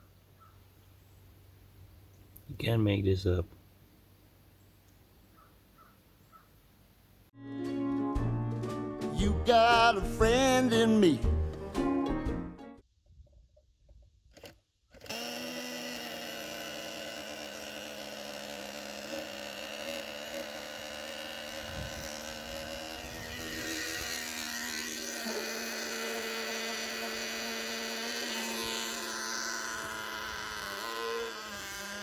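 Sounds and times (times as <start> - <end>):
small engine buzzing whine: 14.3 - 32.0.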